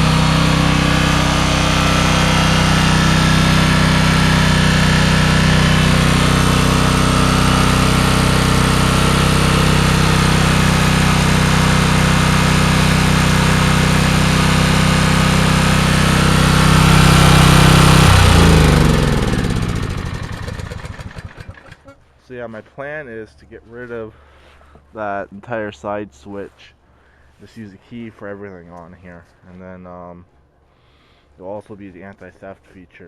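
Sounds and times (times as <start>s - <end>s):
portable generator engine running: 0.0s - 21.9s
engine winding down: 0.0s - 22.0s.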